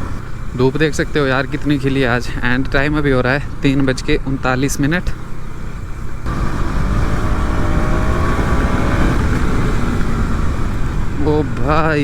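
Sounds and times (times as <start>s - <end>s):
motorcycle engine accelerating: 0.0s - 2.2s, 5.0s - 12.0s
wind and road noise: 0.0s - 12.0s.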